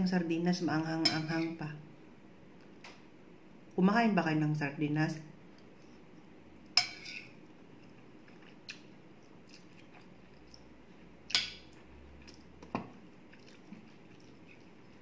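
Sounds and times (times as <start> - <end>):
cutlery clinking on a plate: 6.8 - 7.3
person chewing food: 7.1 - 15.0.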